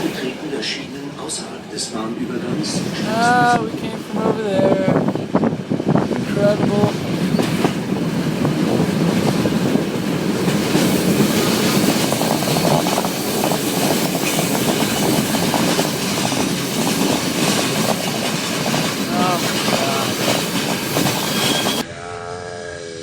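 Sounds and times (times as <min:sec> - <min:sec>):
train wheels rumbling on rails: 0:00.0 - 0:21.8.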